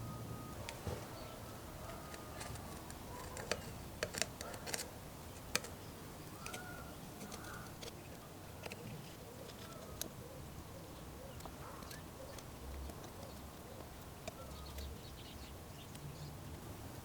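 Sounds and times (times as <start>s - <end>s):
faint birdsong: 0.0s - 17.0s
hand tools clicking and tapping: 1.8s - 5.8s, 6.4s - 10.1s, 11.4s - 15.0s.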